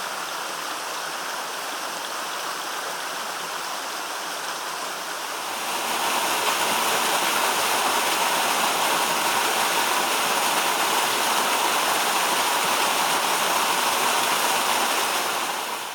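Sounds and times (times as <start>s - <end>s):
waterfall rushing: 4.2s - 15.9s.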